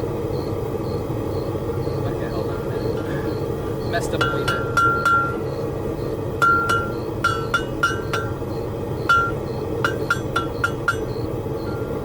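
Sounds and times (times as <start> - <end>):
steady hum: 0.0 - 12.0
hammer ringing on anvil: 4.1 - 5.5, 6.4 - 11.8.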